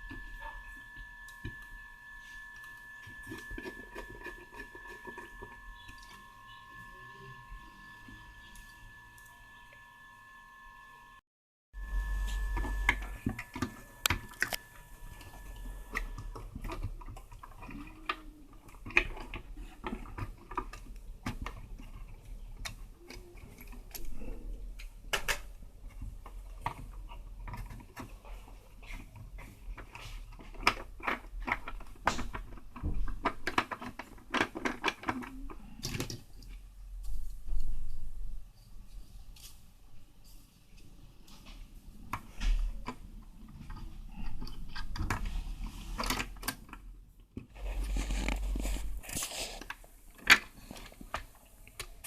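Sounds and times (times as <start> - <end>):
low hum: 11.8 - 16.6
plastic parts clicking and knocking: 15.2 - 38.2, 41.5 - 52.0.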